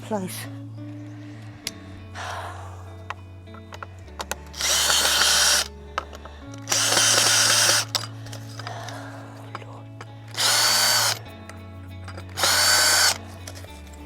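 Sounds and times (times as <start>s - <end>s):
power drill-driver running: 4.5s - 8.7s, 10.3s - 11.2s, 12.4s - 13.7s.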